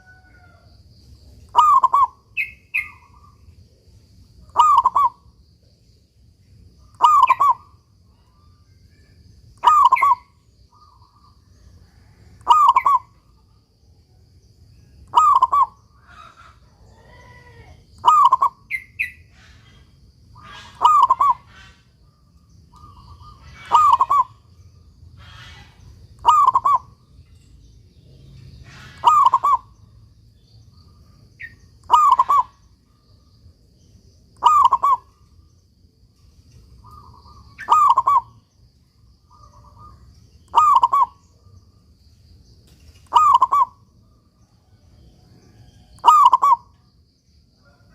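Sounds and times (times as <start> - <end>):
dove cooing: 1.5 - 3.3, 4.5 - 5.2, 7.0 - 7.6, 9.6 - 10.9, 12.4 - 13.1, 15.1 - 18.8, 20.4 - 21.8, 22.8 - 24.4, 26.2 - 26.9, 28.6 - 29.7, 31.8 - 32.5, 34.4 - 35.2, 36.9 - 38.3, 39.3 - 41.2, 43.1 - 43.8, 46.0 - 46.7.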